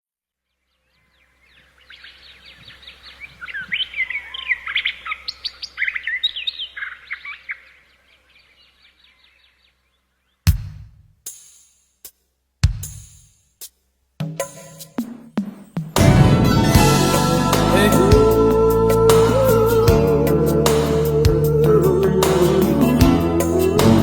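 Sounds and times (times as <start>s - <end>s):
birds chirping and trilling: 0.5s - 10.5s.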